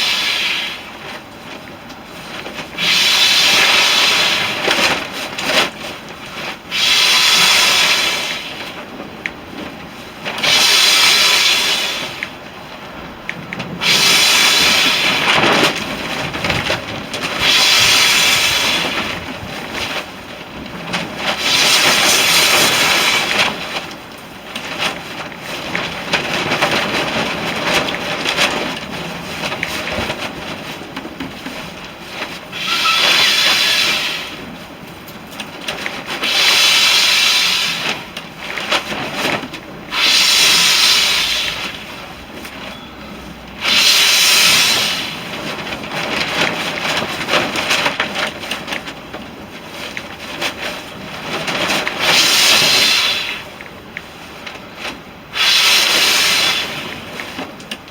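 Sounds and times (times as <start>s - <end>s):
person blowing hissing breaths: 6.7s - 8.8s, 10.5s - 12.2s, 13.8s - 15.4s, 17.4s - 19.1s, 32.5s - 34.5s, 36.2s - 38.1s, 39.9s - 42.0s, 43.6s - 45.4s, 52.0s - 53.6s, 55.3s - 57.1s.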